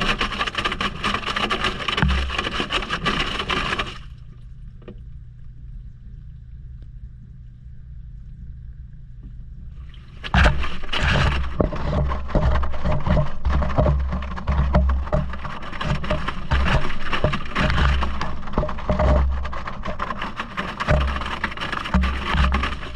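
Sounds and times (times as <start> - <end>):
objects knocking in drum: 0.0 - 4.0, 10.2 - 22.9
water sloshing: 0.0 - 5.1, 9.8 - 22.9
washing machine hum: 0.0 - 22.9.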